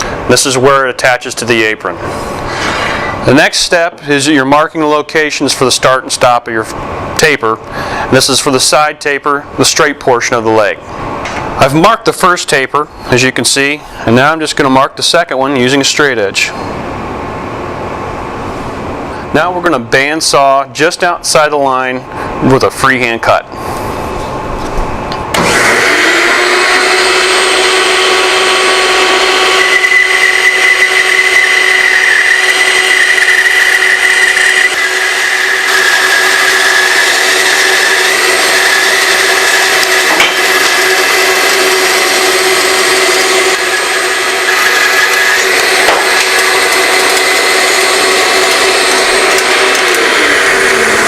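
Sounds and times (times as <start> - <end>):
bandsaw cutting wood: 25.4 - 51.0.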